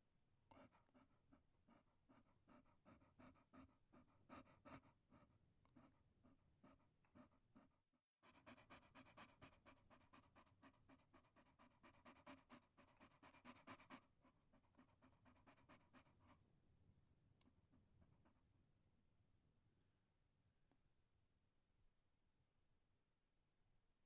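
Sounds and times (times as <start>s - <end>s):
dog panting: 0.5s - 16.5s.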